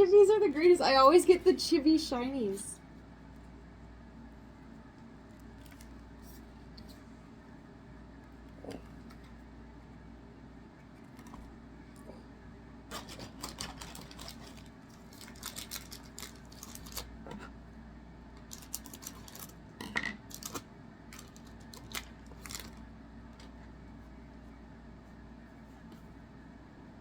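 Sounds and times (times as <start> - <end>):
cards clicking and rustling: 12.9 - 17.1, 18.4 - 19.6, 20.2 - 22.8.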